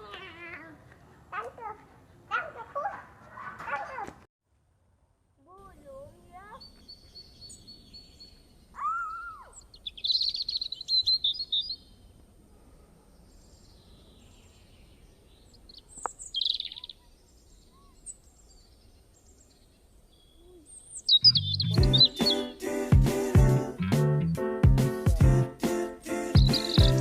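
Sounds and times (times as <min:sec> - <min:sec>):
birds chirping: 0:06.3 - 0:12.4, 0:13.1 - 0:27.0.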